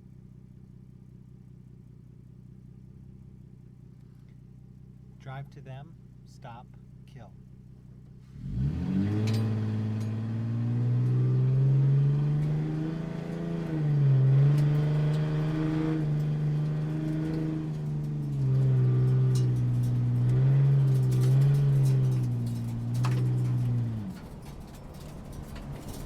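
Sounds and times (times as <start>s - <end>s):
sports car engine running: 0.0s - 26.0s.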